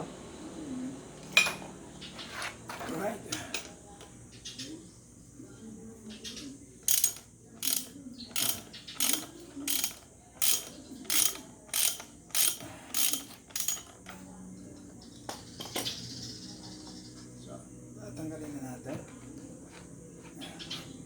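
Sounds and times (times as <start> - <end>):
ratchet wrench clicking: 6.8 - 14.2.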